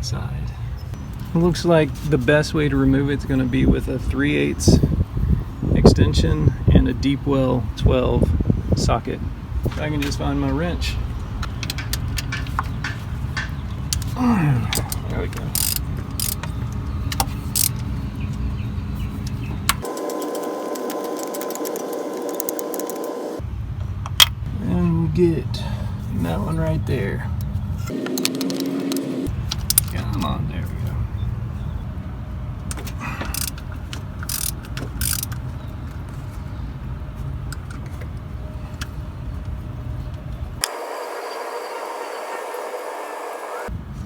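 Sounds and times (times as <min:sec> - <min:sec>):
ratchet wrench clicking: 0:15.5 - 0:16.5, 0:17.2 - 0:17.8, 0:33.3 - 0:33.6, 0:34.2 - 0:35.4
steady hum: 0:19.8 - 0:23.6.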